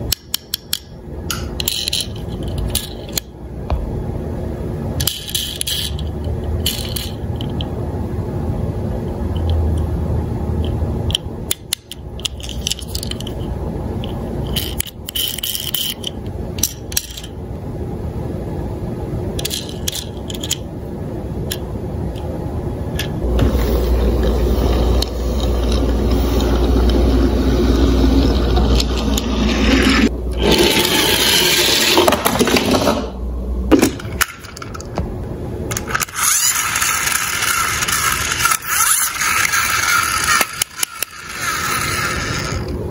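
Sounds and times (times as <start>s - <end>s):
toy cars clattering and scraping: 0.3s - 3.3s, 5.0s - 7.7s, 11.5s - 17.4s, 19.4s - 20.6s, 28.1s - 33.1s, 35.7s - 42.7s
toy cars rolling down slope: 5.0s - 7.5s, 25.7s - 33.1s, 35.7s - 42.8s.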